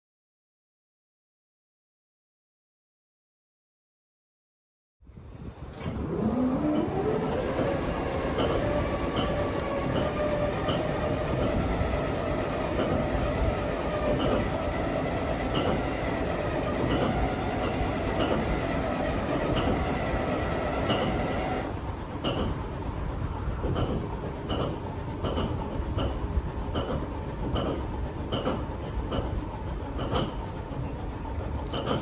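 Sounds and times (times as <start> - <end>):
diesel engine starting and running: 5.6 - 26.1.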